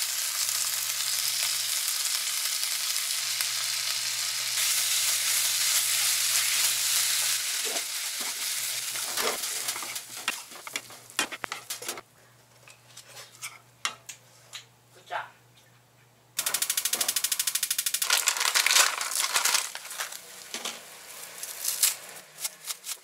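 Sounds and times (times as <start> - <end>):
rice sizzling in a frying pan: 0.0 - 12.0, 16.4 - 22.3
utensil scraping and clicking on pan: 9.0 - 12.0.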